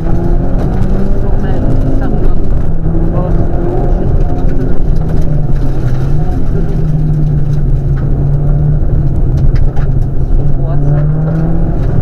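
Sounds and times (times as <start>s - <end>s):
rally car engine under load: 0.0s - 12.0s
road noise: 0.0s - 12.0s.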